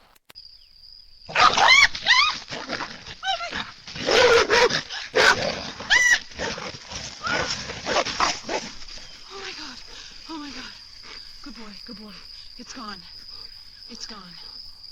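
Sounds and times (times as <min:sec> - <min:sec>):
dog barking: 0:01.3 - 0:02.2, 0:04.0 - 0:06.6
dog growling: 0:01.3 - 0:09.1.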